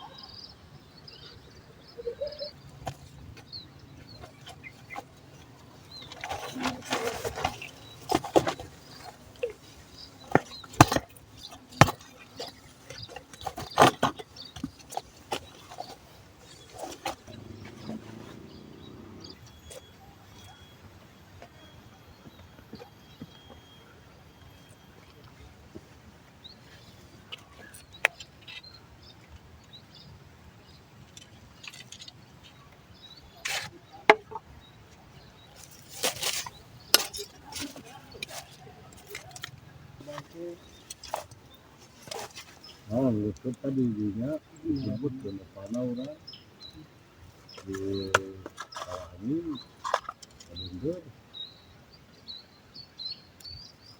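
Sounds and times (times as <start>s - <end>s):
faint outdoor hiss: 0.0s - 53.9s
rustling: 4.1s - 20.6s, 35.6s - 42.9s.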